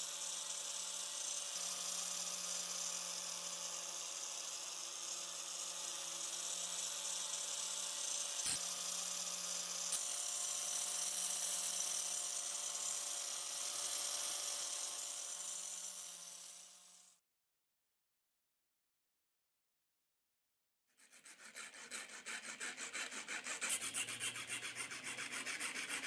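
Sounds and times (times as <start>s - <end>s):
power tool grinding: 3.2s - 16.8s.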